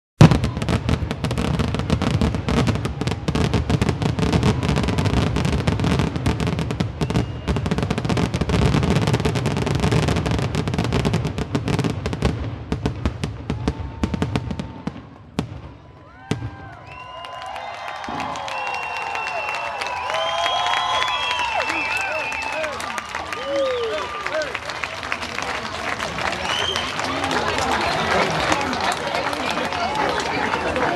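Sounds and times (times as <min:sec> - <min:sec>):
fireworks whistles: 0:00.2 - 0:10.0, 0:16.8 - 0:24.1, 0:26.4 - 0:27.0
fireworks bangs and crackling: 0:00.2 - 0:30.9.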